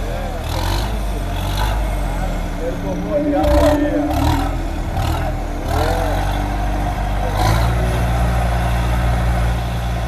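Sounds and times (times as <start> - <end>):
tractor engine running: 0.0 - 10.0
voices: 0.0 - 10.0.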